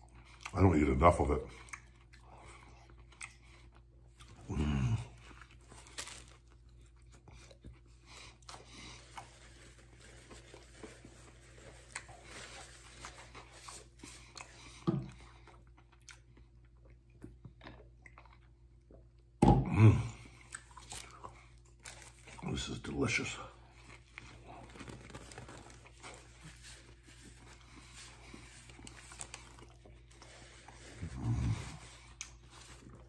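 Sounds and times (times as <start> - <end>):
chewing with wet crunches: 0.0 - 9.3, 13.3 - 19.4, 20.0 - 22.5, 23.5 - 33.0.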